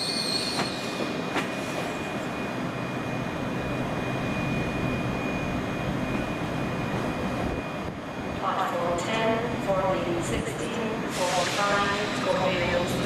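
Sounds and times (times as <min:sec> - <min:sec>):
train wheel squeal: 0:00.0 - 0:03.2
train running noise: 0:00.0 - 0:13.0.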